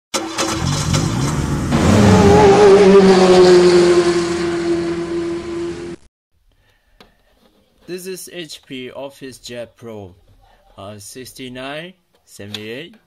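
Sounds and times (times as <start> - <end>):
sports car engine revving: 0.4 - 6.0.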